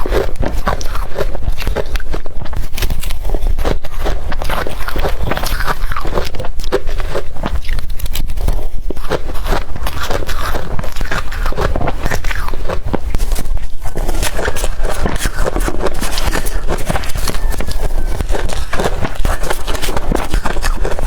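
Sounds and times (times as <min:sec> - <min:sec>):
crushed ice being chewed: 0:00.0 - 0:21.0.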